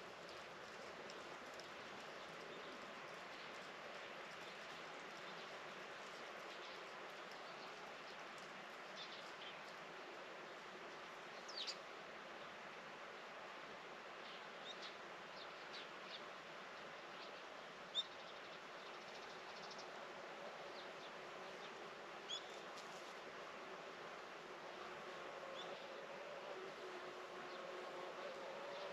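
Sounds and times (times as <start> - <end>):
faint outdoor ambience: 0.0 - 28.9.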